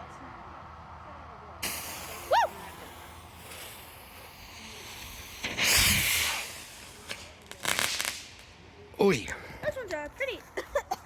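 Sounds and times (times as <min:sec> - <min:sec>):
firework rushing hiss: 0:01.6 - 0:08.9
firework crackles and pops: 0:01.6 - 0:10.3.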